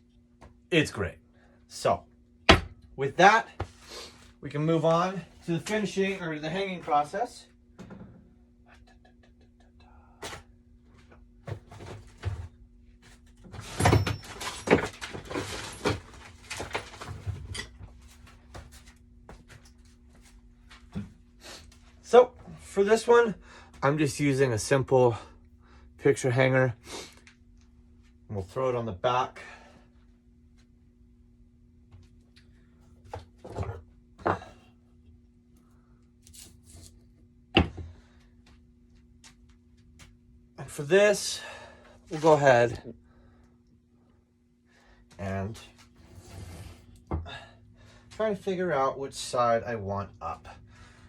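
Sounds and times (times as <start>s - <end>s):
steady low hum: 0.0s - 51.0s
clattering and rustling: 13.2s - 18.8s.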